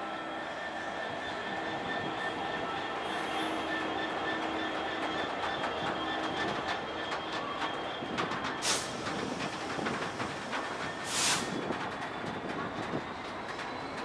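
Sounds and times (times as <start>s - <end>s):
train wheels clicking over rail joints: 4.2s - 14.0s
sharp hiss: 11.0s - 11.5s.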